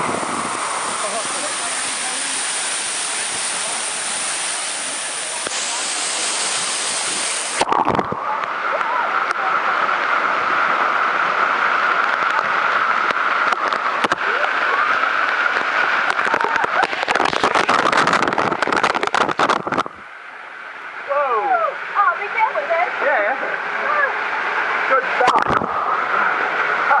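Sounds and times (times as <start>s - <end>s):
waterfall rushing: 0.0s - 27.0s
faint voices: 0.6s - 11.2s, 11.8s - 19.3s
dense crackle of clicks: 15.2s - 20.0s.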